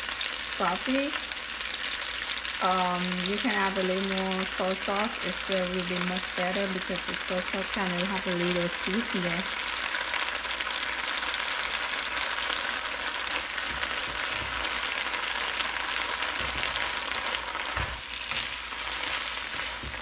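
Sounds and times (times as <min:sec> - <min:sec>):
vegetables sizzling in a wok: 0:00.0 - 0:20.0
chopsticks knocking on a wok: 0:13.7 - 0:14.8.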